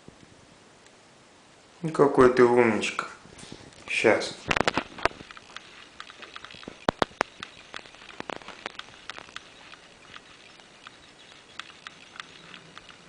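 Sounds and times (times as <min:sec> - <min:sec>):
cat claws scratching and clicking: 0:04.5 - 0:13.0.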